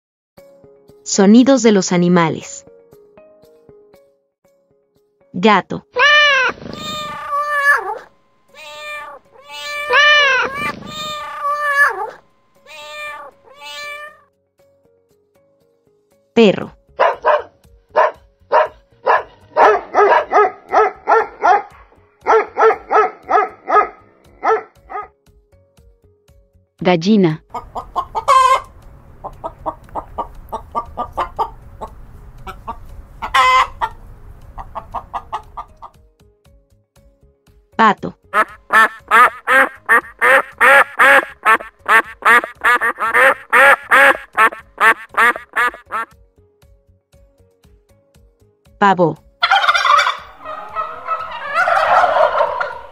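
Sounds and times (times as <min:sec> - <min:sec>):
dog barking: 0:17.0 - 0:25.1
duck quacking: 0:27.5 - 0:31.9, 0:32.5 - 0:34.0, 0:38.4 - 0:46.1, 0:49.4 - 0:52.9.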